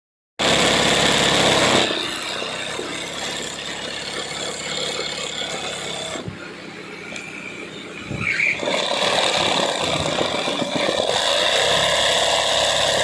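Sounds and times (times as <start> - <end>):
embroidery machine rattling: 0.4 - 6.2, 8.6 - 13.0.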